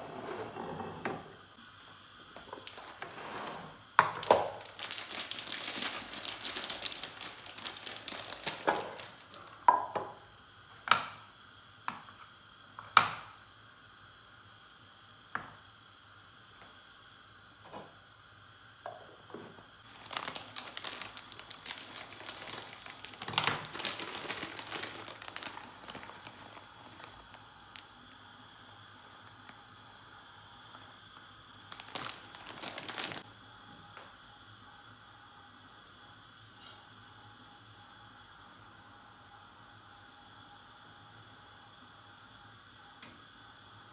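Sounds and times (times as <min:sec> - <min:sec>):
packaging crinkling: 0:02.5 - 0:03.2, 0:04.1 - 0:09.8, 0:19.8 - 0:28.0, 0:31.6 - 0:33.2.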